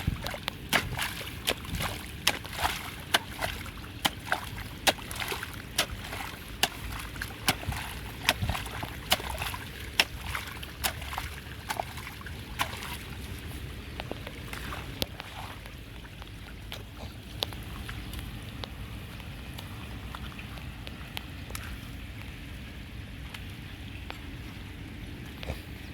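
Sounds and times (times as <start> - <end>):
water splashing at a drain: 0.0 - 16.8
rushing water: 0.0 - 22.3.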